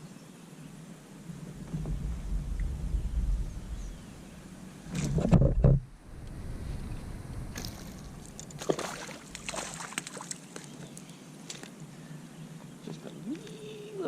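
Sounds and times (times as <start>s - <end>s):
water sloshing against kayak: 7.6s - 10.9s.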